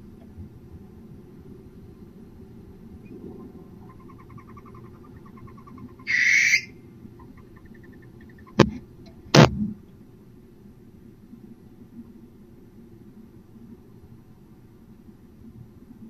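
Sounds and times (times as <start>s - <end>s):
owl ticking notes: 3.4s - 8.6s
owl screech: 3.9s - 6.8s
sharp knocks: 8.6s - 9.7s.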